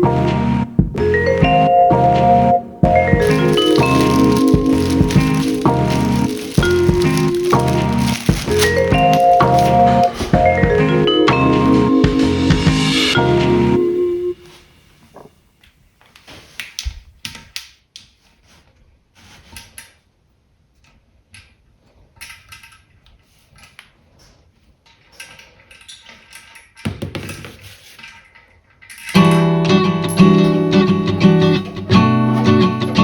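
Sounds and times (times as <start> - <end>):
music: 0.0 - 14.4, 29.2 - 33.0.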